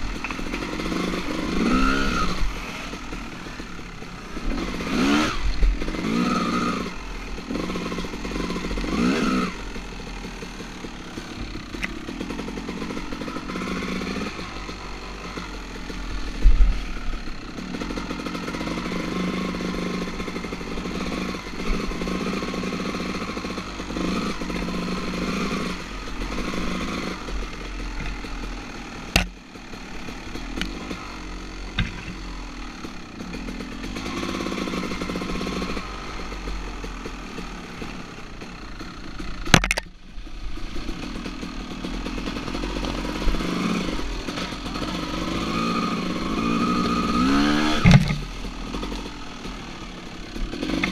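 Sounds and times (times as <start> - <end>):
dirt bike engine revving: 0.0 - 50.9
sharp knocks: 47.8 - 48.3.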